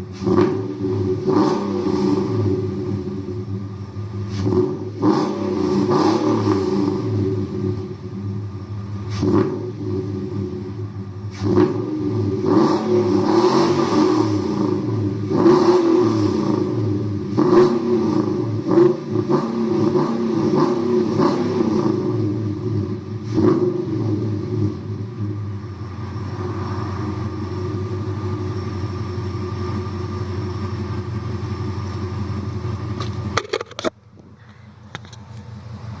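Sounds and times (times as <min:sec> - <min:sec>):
car engine revving and idling: 0:00.0 - 0:36.0.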